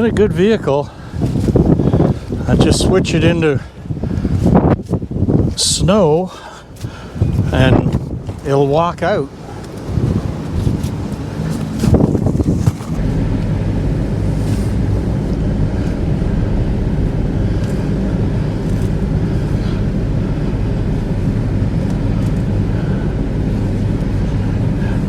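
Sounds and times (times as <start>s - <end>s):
wind noise on microphone: 0.0s - 25.0s
vehicle engine running: 9.2s - 25.0s.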